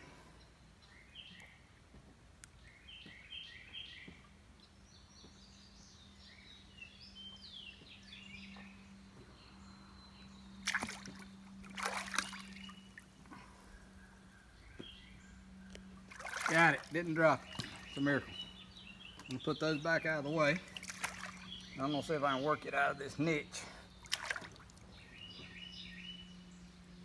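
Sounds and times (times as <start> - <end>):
birds chirping: 0.0 - 1.8, 2.4 - 27.0
pool water sloshing: 10.4 - 25.6.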